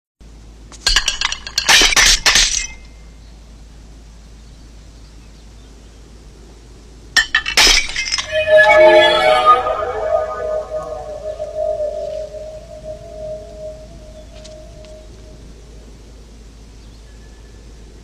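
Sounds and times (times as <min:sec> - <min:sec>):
sharp clinks and crashes: 0:00.9 - 0:02.8, 0:07.2 - 0:08.6.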